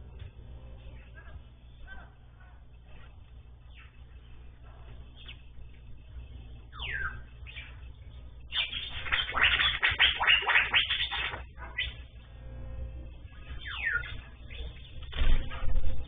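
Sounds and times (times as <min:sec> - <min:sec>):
low steady hum: 0:00.0 - 0:16.0
songbirds calling: 0:03.5 - 0:12.2, 0:13.4 - 0:15.2.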